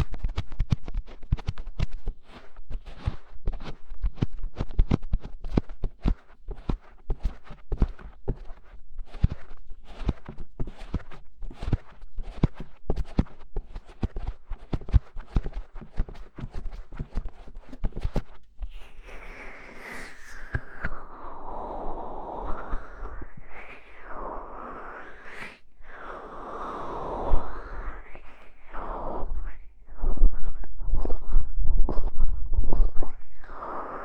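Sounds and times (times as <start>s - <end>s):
scratches and taps on microphone: 0.0s - 34.0s
rubbing sound sliding down: 5.5s - 21.8s.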